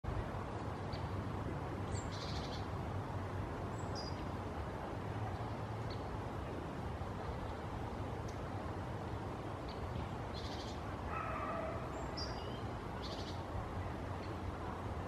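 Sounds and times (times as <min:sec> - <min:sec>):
bird chirps and trills: 0:09.7 - 0:13.4.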